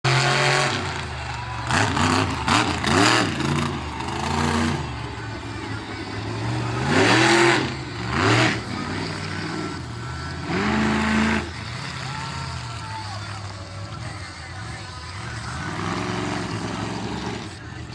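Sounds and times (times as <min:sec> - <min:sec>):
monster truck engine revving: 0:00.0 - 0:17.9.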